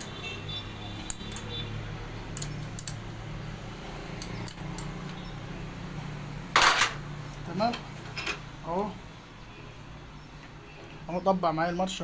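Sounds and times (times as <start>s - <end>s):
spanner clinking on metal: 2.3s - 3.0s.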